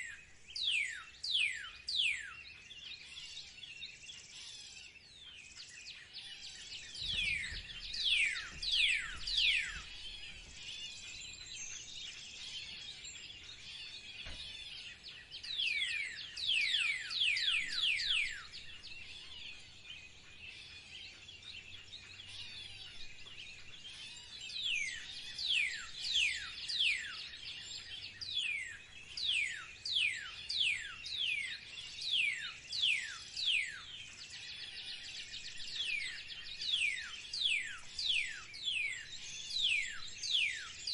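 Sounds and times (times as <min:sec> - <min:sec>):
small birds chirping: 0:00.0 - 0:40.9
falling whistled bird notes: 0:06.9 - 0:10.4.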